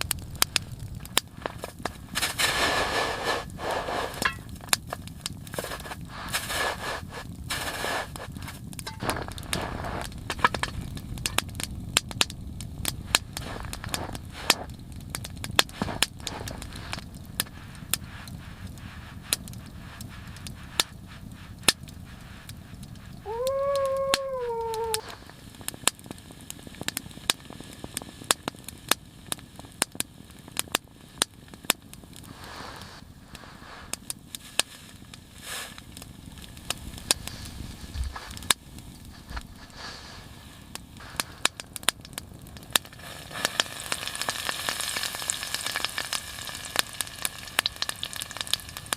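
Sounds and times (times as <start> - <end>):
wood fire crackling and popping: 0.0 - 48.9
puppy whining: 23.3 - 25.1.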